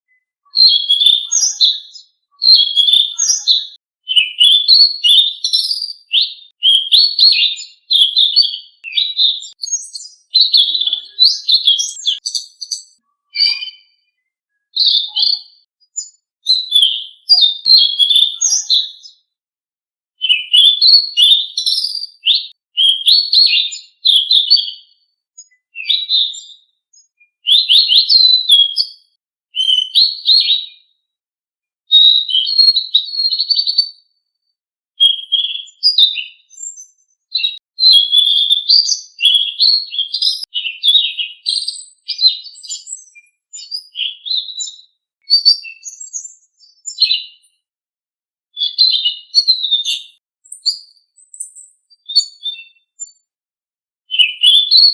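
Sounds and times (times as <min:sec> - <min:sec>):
songbird twittering: 0:00.5 - 0:19.2, 0:37.4 - 0:47.2.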